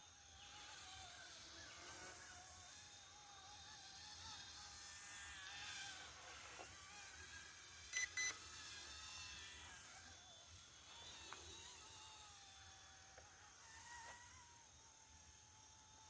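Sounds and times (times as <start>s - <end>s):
short electronic beeps: 7.9s - 8.4s.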